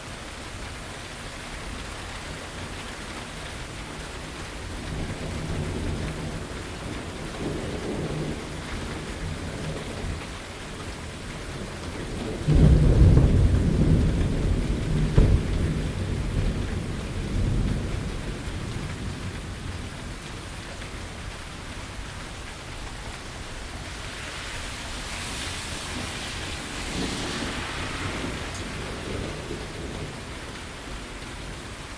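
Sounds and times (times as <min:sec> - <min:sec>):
steady rain falling: 0:00.0 - 0:31.9
thunder rumbling: 0:11.9 - 0:21.4, 0:24.8 - 0:31.1.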